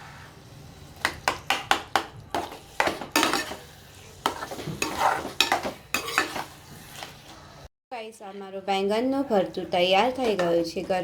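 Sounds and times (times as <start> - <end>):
spoon stirring thick mash in pan: 1.0 - 7.4
spoon scraping and knocking metal: 1.4 - 7.1.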